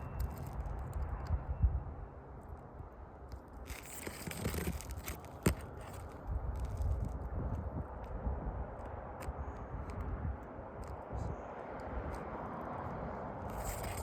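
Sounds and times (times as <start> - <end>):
roof shingles scraping and rustling: 3.6 - 7.2, 13.5 - 14.0.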